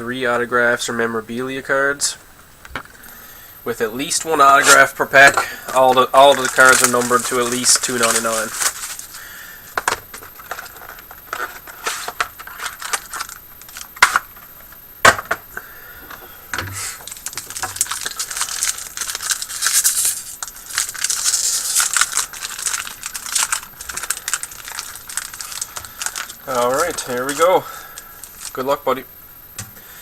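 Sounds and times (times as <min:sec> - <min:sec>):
plastic crinkling: 0:04.0 - 0:14.8, 0:16.8 - 0:28.9
plastic wrapping tearing: 0:04.4 - 0:09.3, 0:10.1 - 0:14.3, 0:16.9 - 0:28.7.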